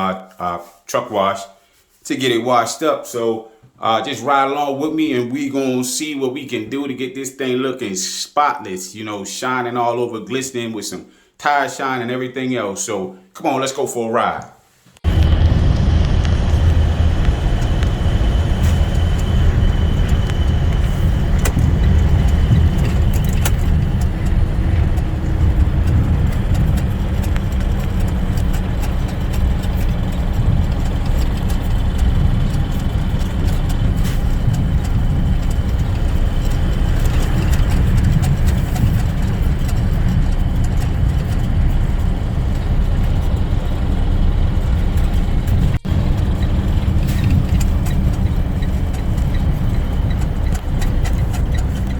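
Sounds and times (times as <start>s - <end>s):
truck engine and road rumble: 15.0s - 51.9s.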